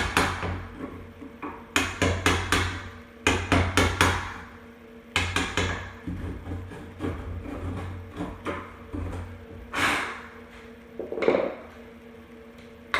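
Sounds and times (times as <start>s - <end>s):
hammer tapping: 1.4s - 4.4s, 5.2s - 6.3s.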